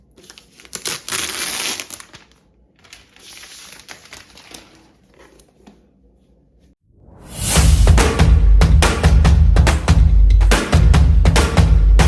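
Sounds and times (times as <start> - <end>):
packaging crinkling: 0.0 - 5.5.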